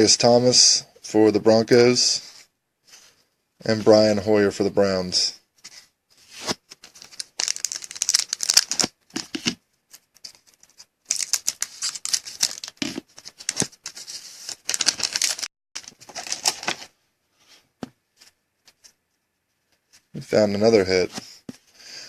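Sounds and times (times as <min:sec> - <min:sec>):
cards and wrapping rustling: 0:05.6 - 0:17.0.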